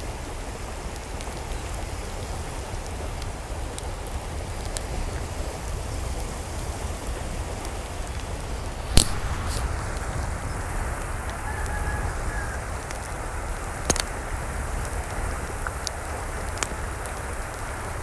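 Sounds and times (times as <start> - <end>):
sharp clicks: 9.0 - 10.1
drip-like ticks: 13.8 - 14.2.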